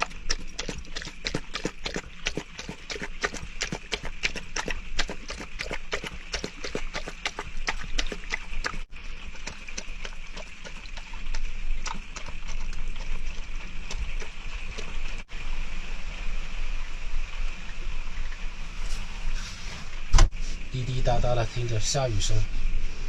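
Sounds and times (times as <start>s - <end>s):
steady rain hiss: 15.3s - 23.0s.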